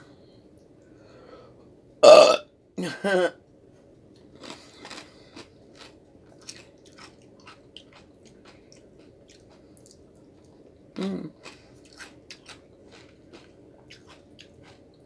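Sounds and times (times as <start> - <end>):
short vocal hum: 2.0 - 3.3
crunchy chewing: 4.4 - 15.0.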